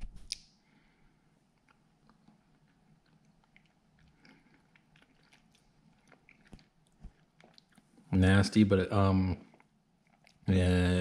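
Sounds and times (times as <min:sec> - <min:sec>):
faint chewing clicks: 0:01.5 - 0:08.0, 0:09.4 - 0:10.5.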